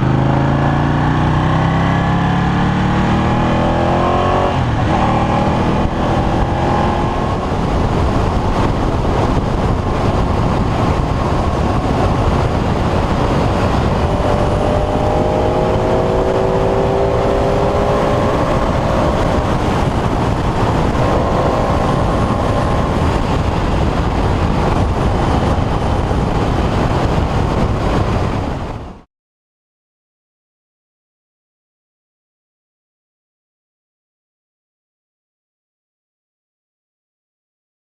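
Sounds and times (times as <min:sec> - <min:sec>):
motorcycle engine running: 0:00.0 - 0:28.8
wind rush: 0:00.0 - 0:29.1.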